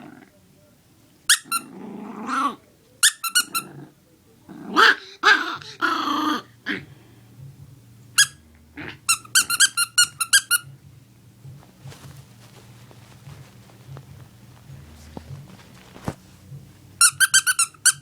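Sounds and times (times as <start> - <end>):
puppy growling: 0.0 - 0.3, 1.4 - 2.7, 3.4 - 7.0, 8.7 - 10.4
squeaky toy squeaking: 1.3 - 1.6, 3.0 - 3.7, 8.2 - 8.4, 9.1 - 10.7, 17.0 - 18.0.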